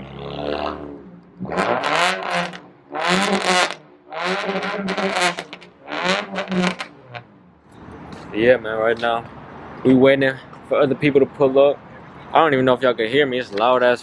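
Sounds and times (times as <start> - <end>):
car engine revving: 0.0 - 8.3
car engine idling: 1.0 - 8.4.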